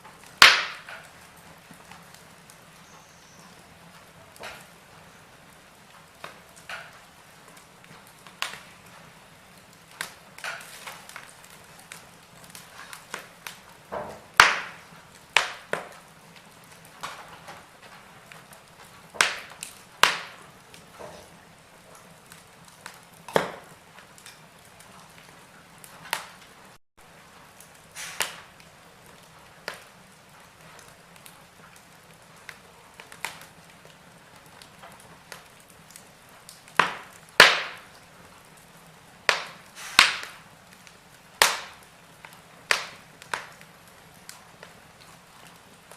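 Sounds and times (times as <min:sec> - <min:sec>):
wood fire crackling: 0:00.0 - 0:45.9
faint hiss: 0:25.4 - 0:34.5, 0:35.2 - 0:45.9.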